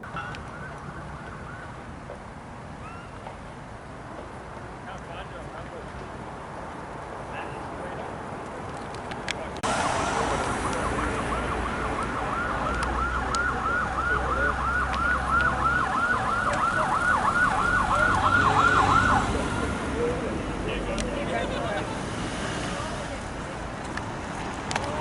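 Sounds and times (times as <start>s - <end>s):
siren yelping: 0.0s - 1.9s, 9.6s - 20.0s.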